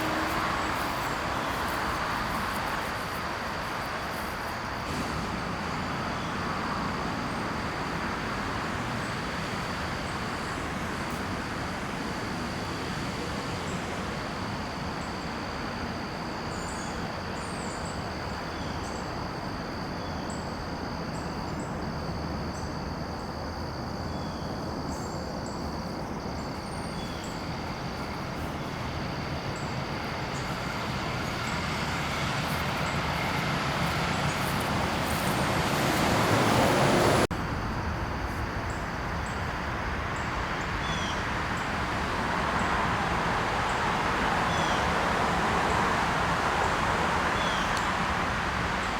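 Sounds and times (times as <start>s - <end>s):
steady rushing noise: 26.0s - 48.9s.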